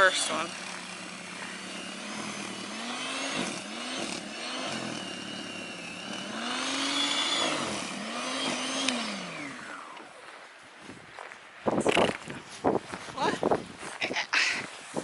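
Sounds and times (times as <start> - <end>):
electric snow blower motor whine: 0.0 - 10.2.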